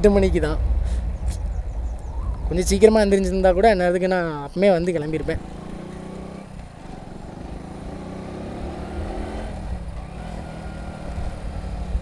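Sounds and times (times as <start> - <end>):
wind rumble on microphone: 0.0 - 12.0
motorcycle engine running: 5.2 - 12.0.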